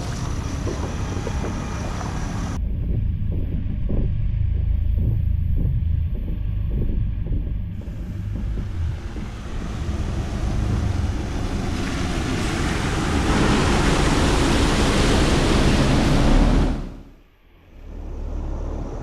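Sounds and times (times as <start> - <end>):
floodwater rushing: 7.8 - 17.1.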